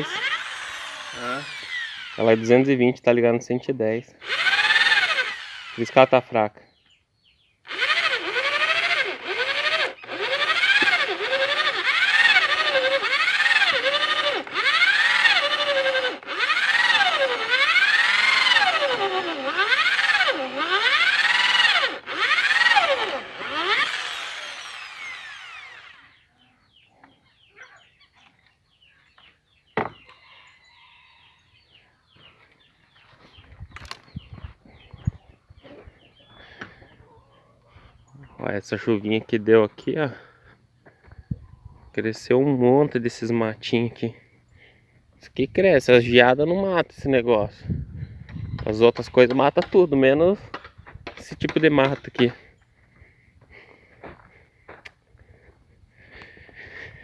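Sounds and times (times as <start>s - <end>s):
electric drill whining: 0.0s - 2.8s, 4.2s - 6.3s, 7.6s - 26.2s.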